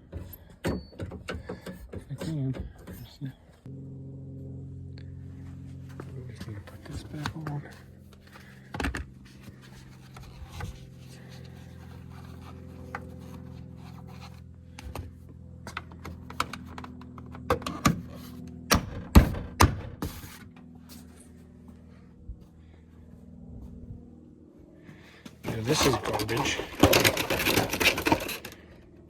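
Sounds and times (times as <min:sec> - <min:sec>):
knocks and clicks of parts handled: 0:00.0 - 0:03.3
steady low hum: 0:01.3 - 0:29.0.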